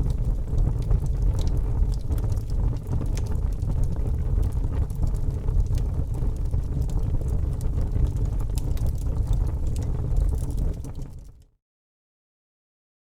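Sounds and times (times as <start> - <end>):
campfire crackling and popping: 0.0 - 11.3.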